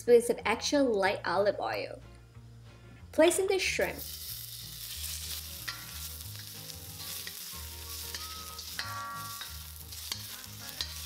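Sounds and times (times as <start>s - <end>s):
shrimp sizzling in a wok: 3.6s - 11.0s
spatula scraping a pan: 4.0s - 11.0s.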